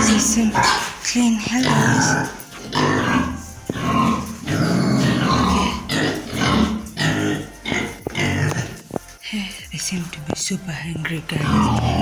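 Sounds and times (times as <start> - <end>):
pigs squealing and grunting: 0.0 - 8.9, 11.4 - 12.0.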